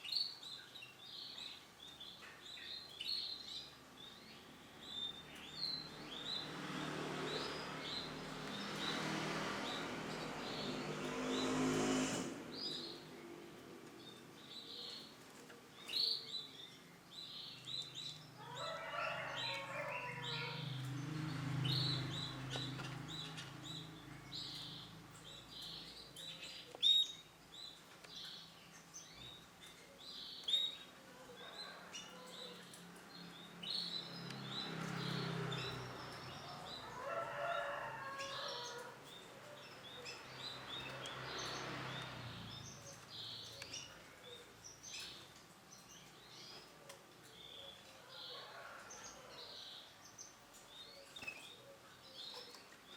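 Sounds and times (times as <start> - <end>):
canary chirping: 0.0 - 13.2.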